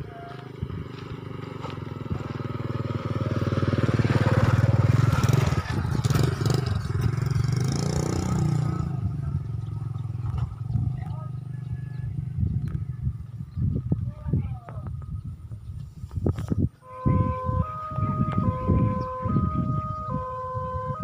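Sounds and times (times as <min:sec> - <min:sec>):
vehicle engine passing: 0:00.0 - 0:13.9.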